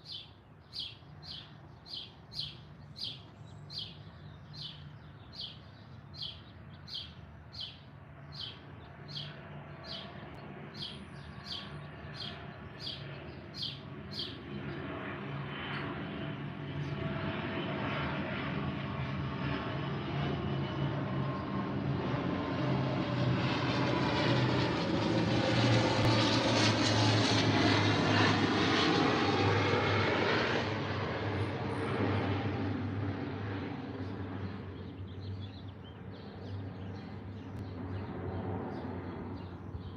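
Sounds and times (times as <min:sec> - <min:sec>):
bird chirping: 0:00.0 - 0:14.8, 0:34.4 - 0:39.9
aircraft engine passing overhead: 0:00.0 - 0:39.9.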